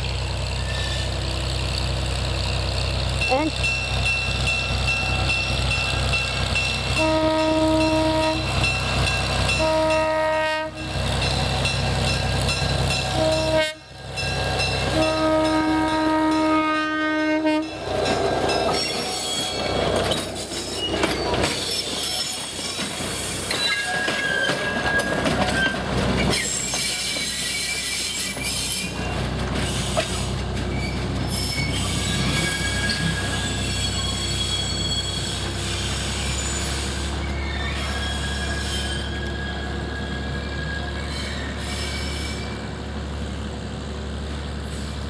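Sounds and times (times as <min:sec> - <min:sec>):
low train rumble: 0:00.0 - 0:45.0
train cars clattering: 0:00.2 - 0:45.0
steel wheels squealing: 0:00.4 - 0:01.6, 0:17.6 - 0:42.9
locomotive horn blast: 0:06.9 - 0:08.6, 0:09.5 - 0:11.0, 0:13.1 - 0:14.0, 0:14.8 - 0:17.7.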